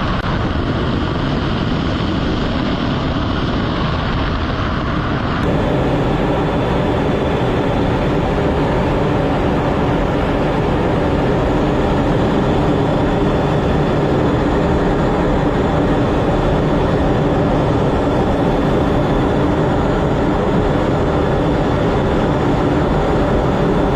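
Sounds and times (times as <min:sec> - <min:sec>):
jet engines rumbling: 0:00.0 - 0:23.9.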